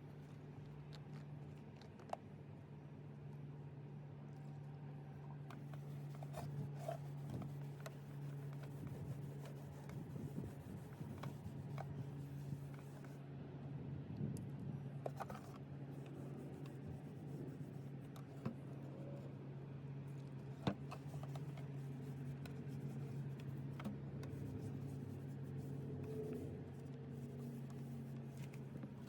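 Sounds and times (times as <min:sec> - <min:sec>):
steady low hum: 0:04.0 - 0:29.0
light rubbing and scraping: 0:05.5 - 0:13.2, 0:15.0 - 0:19.4, 0:20.1 - 0:29.0.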